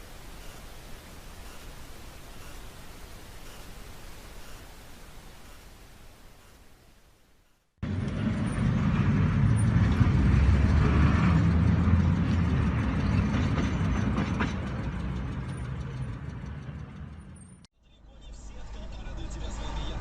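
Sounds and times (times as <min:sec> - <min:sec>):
vehicle engine and road rumble: 0:07.6 - 0:20.0.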